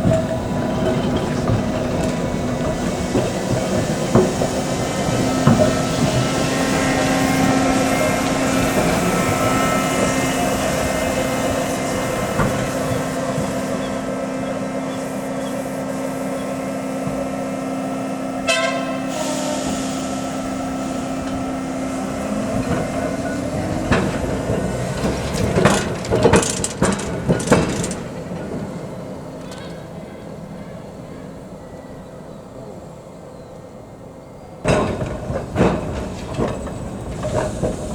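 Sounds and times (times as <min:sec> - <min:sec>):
tram running on rails: 0:00.0 - 0:37.9
tram bell toot: 0:18.4 - 0:24.2.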